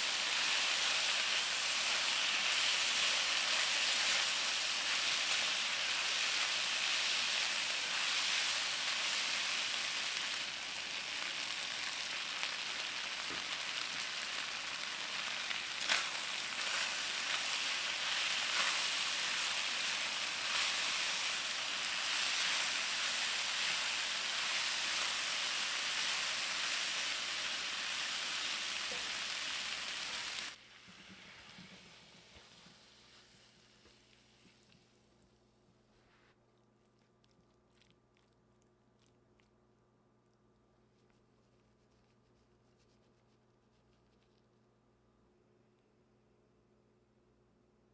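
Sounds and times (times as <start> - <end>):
food sizzling in frying pan: 0.0 - 33.8.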